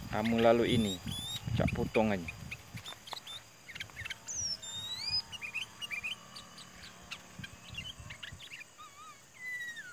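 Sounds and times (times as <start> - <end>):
bird whistled glides: 0.0 - 9.9
bird short chirps: 2.3 - 9.9.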